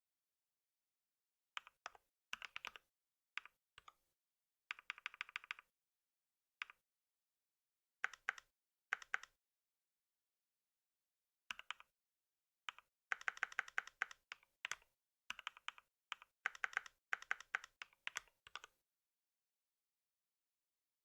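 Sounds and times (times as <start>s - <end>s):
typing on computer keyboard: 2.4s - 3.9s, 4.7s - 5.7s, 8.0s - 9.4s, 11.5s - 11.9s, 12.7s - 18.8s.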